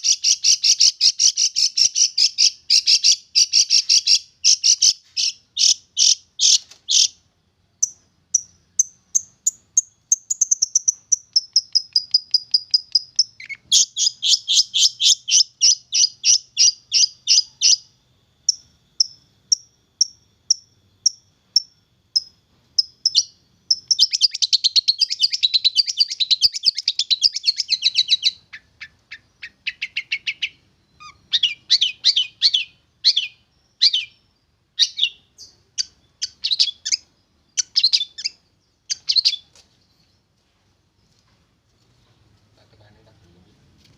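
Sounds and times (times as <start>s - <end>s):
shrike chattering song: 22.2s - 34.2s.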